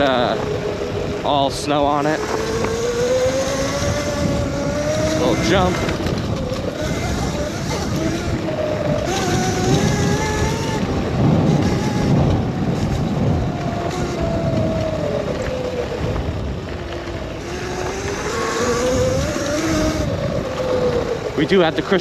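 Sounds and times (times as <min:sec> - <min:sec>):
electric motor whining: 0:00.0 - 0:22.0
wind rumble: 0:00.0 - 0:22.0.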